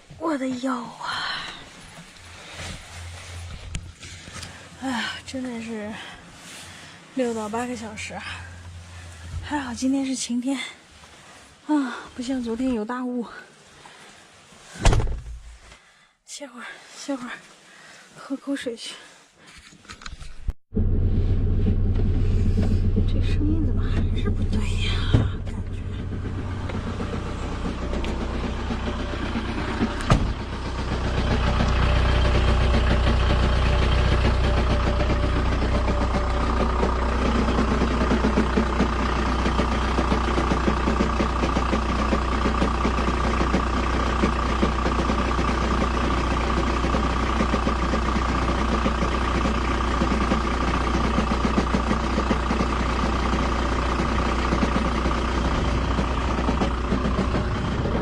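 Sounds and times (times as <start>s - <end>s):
motorhome engine idling: 0.0s - 12.7s, 20.7s - 58.0s
steady whine: 20.7s - 32.2s.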